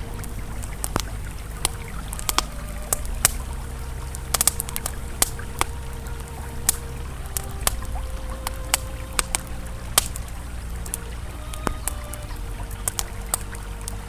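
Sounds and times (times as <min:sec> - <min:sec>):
campfire crackling: 0:00.0 - 0:14.0
river flowing: 0:00.0 - 0:14.0.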